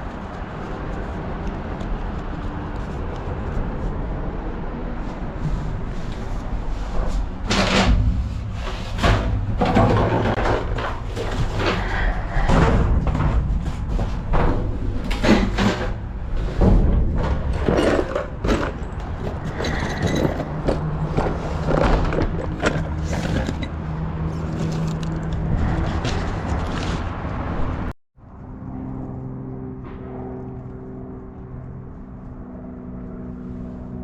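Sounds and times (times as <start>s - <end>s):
steady engine hum: 0.0s - 34.0s
items clattering while rummaged: 6.9s - 11.9s, 12.5s - 23.8s.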